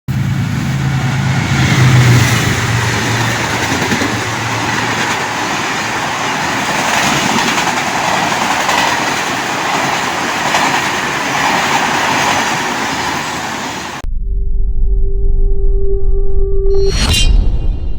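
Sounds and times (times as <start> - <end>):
train rumbling and rattling: 0.1 - 14.0
low hum: 14.0 - 17.9.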